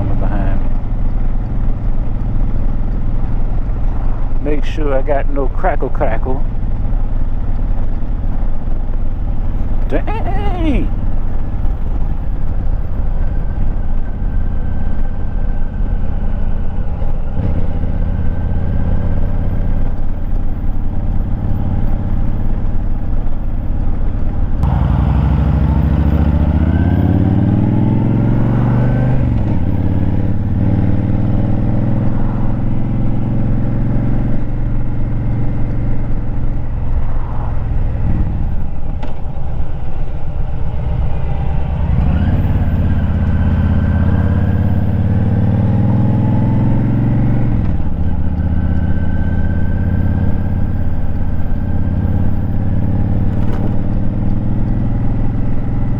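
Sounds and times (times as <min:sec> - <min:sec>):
motorcycle engine revving: 0:24.6 - 0:55.9.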